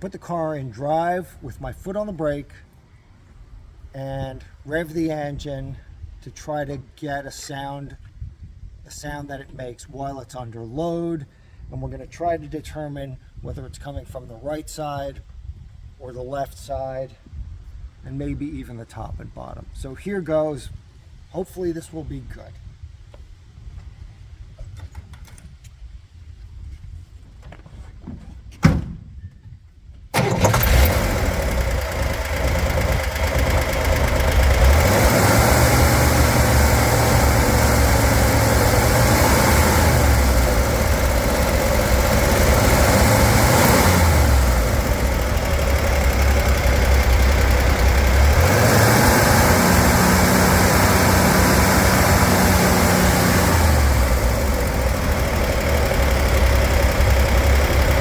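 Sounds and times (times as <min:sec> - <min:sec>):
car engine starting and revving: 0:30.2 - 0:58.0
chattering hammering engine noise: 0:30.2 - 0:58.0.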